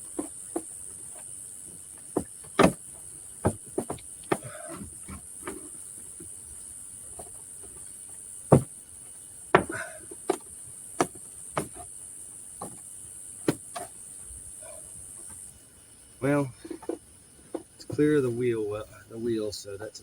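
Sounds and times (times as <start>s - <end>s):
steady high hiss: 0.0s - 20.0s
plastic bumper knocking and clicking: 2.1s - 5.7s.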